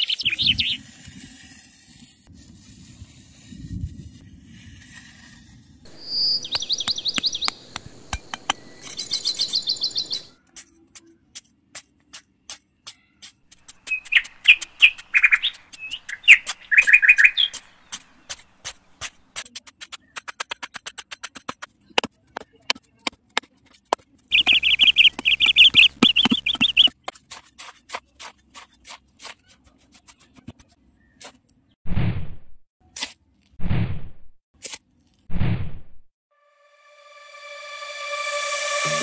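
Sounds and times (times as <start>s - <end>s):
birds chirping: 0.0s - 0.8s, 5.9s - 10.4s, 13.7s - 19.0s, 24.3s - 27.1s
trowel scraping sand on concrete: 0.1s - 7.2s, 10.5s - 21.9s, 23.2s - 31.5s.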